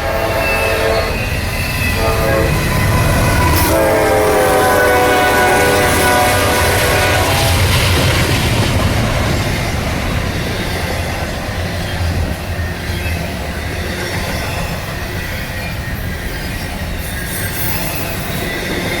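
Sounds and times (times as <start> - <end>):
train horn: 0.0 - 8.0
freight train wheels on rail: 0.0 - 19.0
locomotive rumble: 0.0 - 19.0.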